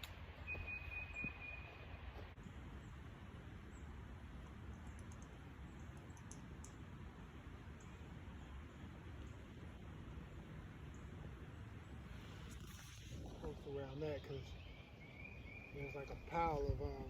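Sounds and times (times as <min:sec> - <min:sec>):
low steady rumble: 0:00.0 - 0:17.0
faint high clicks: 0:04.4 - 0:06.8.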